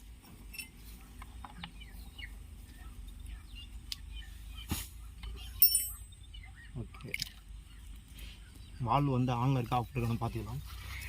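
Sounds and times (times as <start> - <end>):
small birds chirping: 0.0 - 11.0
metallic clink with ring: 5.6 - 6.1.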